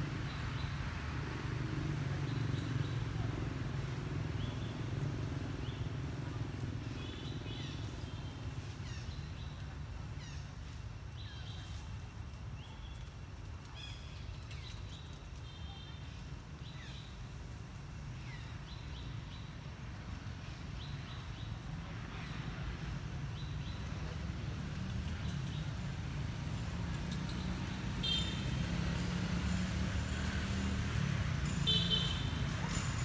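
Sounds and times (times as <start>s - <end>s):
birds chirping: 26.6s - 33.0s.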